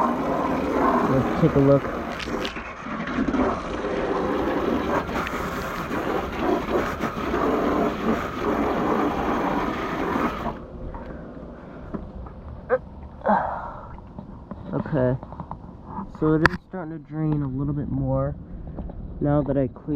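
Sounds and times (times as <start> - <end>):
garden hose spraying water: 0.0 - 2.5, 3.4 - 10.6.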